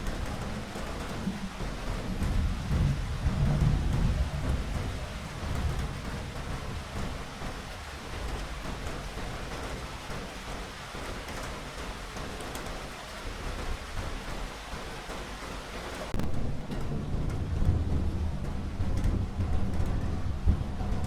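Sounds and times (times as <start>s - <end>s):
rain hissing: 0.0s - 16.2s
distant thunder rumble: 0.0s - 21.0s.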